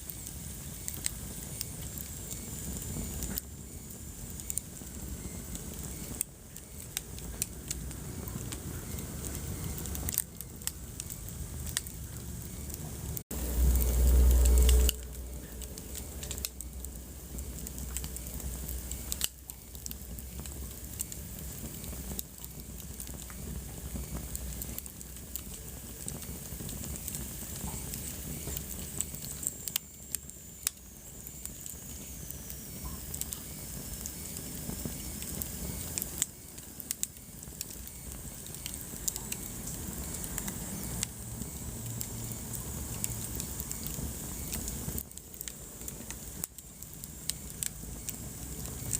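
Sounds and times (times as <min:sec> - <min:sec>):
fire crackling: 0:00.0 - 0:48.9
faint high whistle: 0:00.2 - 0:07.0.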